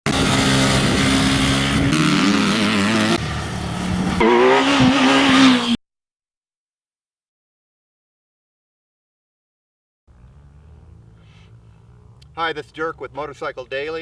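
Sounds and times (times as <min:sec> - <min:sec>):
motorcycle engine revving: 0:00.0 - 0:05.8, 0:10.1 - 0:13.5.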